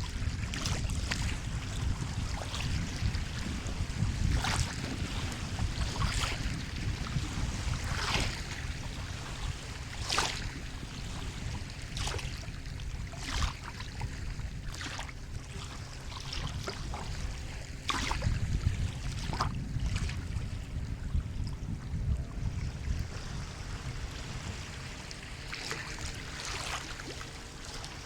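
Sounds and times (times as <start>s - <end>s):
low rumble of surf: 0.0s - 28.0s
sea water splashing: 0.0s - 28.0s.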